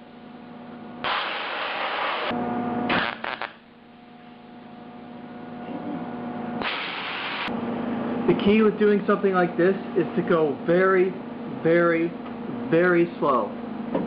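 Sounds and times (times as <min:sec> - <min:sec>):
steady welder hum: 0:00.0 - 0:12.1
welder crackling: 0:01.0 - 0:03.6, 0:06.6 - 0:07.5.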